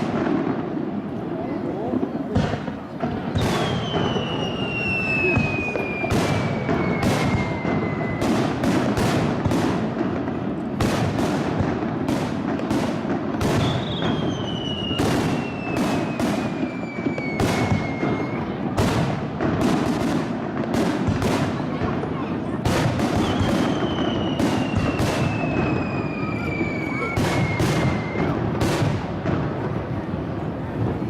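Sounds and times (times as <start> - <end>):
fireworks bursting: 0.0 - 31.0
high falling whistle: 3.6 - 8.4.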